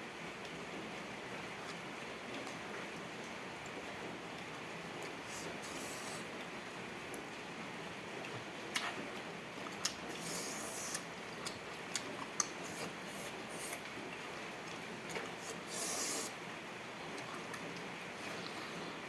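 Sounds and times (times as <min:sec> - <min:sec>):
eating clicks and smacks: 0:10.9 - 0:12.6
short hissing bursts: 0:15.4 - 0:16.4
background hiss: 0:15.4 - 0:16.5.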